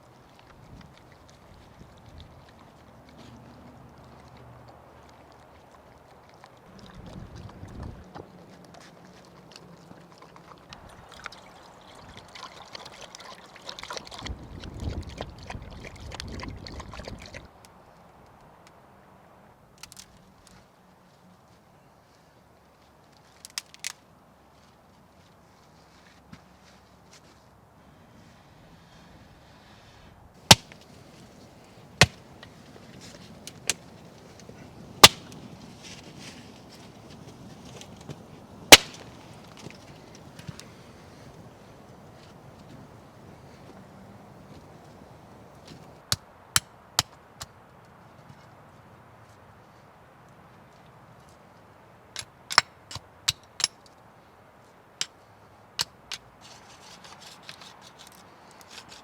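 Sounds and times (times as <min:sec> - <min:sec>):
axe chopping wood: 0:30.5 - 0:30.8, 0:31.9 - 0:33.8, 0:34.4 - 0:35.4, 0:38.7 - 0:39.2.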